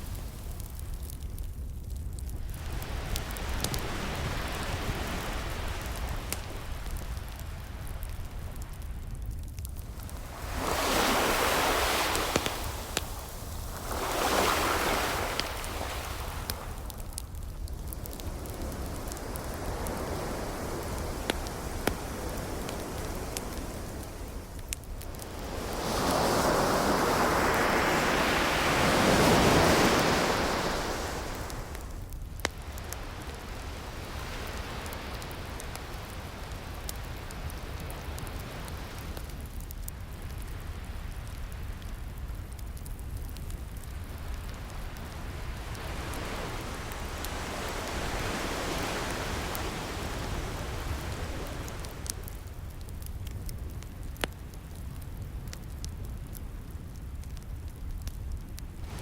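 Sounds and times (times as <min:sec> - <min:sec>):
steady hiss: 0:00.0 - 0:53.0
wood fire crackling: 0:00.0 - 0:59.0
ocean waves washing in: 0:02.6 - 0:08.3, 0:09.8 - 0:32.0, 0:44.0 - 0:52.5, 0:58.8 - 0:59.0.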